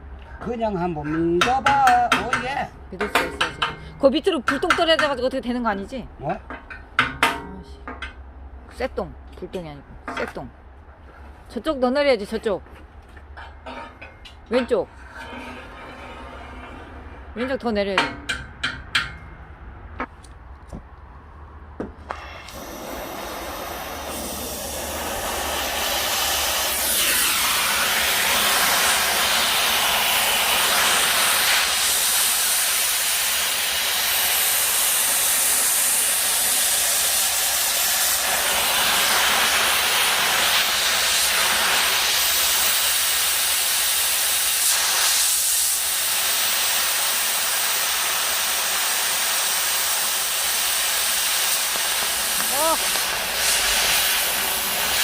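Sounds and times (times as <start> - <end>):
cutting torch hissing: 22.0 - 55.0.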